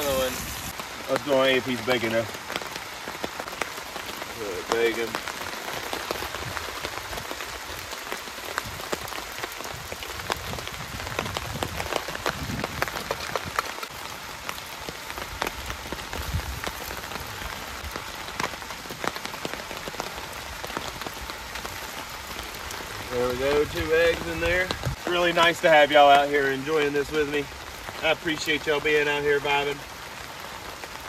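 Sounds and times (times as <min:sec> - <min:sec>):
bacon sizzling in a pan: 0:00.0 - 0:00.8
rain patter: 0:00.0 - 0:31.0.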